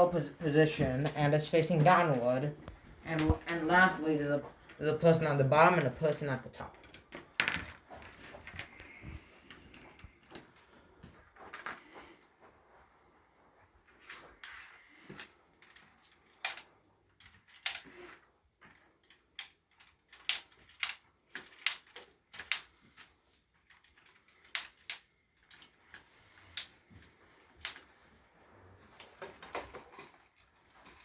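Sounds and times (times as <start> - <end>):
plastic pieces clicking on table: 15.1 - 26.7, 27.6 - 27.9.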